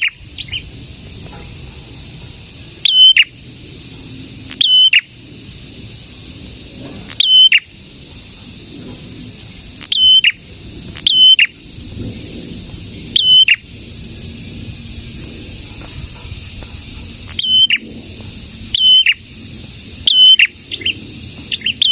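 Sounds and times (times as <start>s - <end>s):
bird whistling call: 0.0s - 0.6s, 2.8s - 3.3s, 4.5s - 5.1s, 7.1s - 7.7s, 9.8s - 10.4s, 11.0s - 11.6s, 13.2s - 13.6s, 17.3s - 17.8s, 18.7s - 19.2s, 20.1s - 21.9s
steady high hiss: 0.0s - 21.9s.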